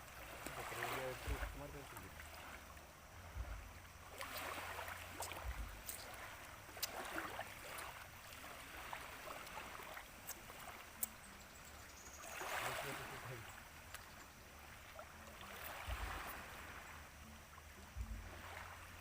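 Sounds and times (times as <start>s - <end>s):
small waves washing ashore: 0.0s - 19.0s
wind rumble on microphone: 1.2s - 7.9s, 15.0s - 19.0s.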